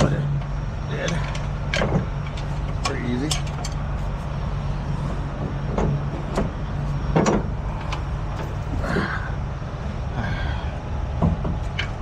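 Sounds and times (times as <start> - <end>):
metal clanks: 0.0 - 3.9, 11.2 - 12.0
truck engine idling: 0.0 - 12.0.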